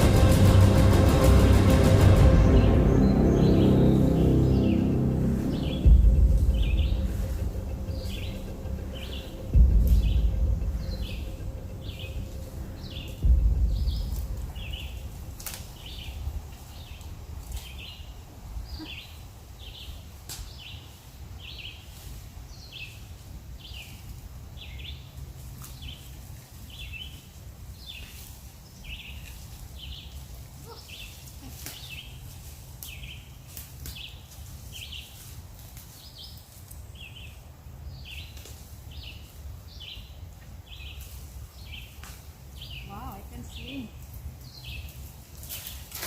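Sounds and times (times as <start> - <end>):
low rumble: 0.0 - 19.8.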